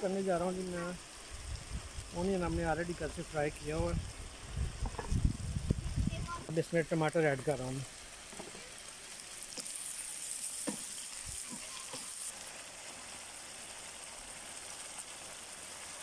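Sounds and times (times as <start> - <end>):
chicken and tomatoes sizzling in wok: 0.0 - 16.0
wooden spatula scraping: 9.5 - 12.3.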